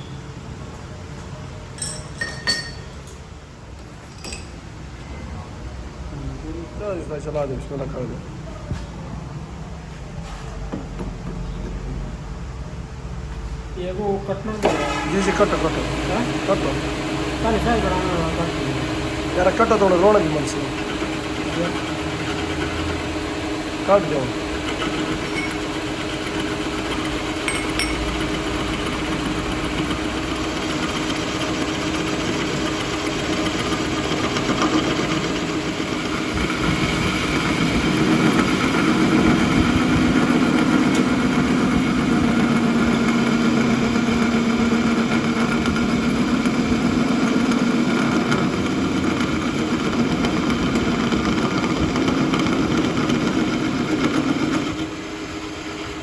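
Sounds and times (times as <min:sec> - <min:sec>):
lathe cutting steel: 0:14.6 - 0:56.0.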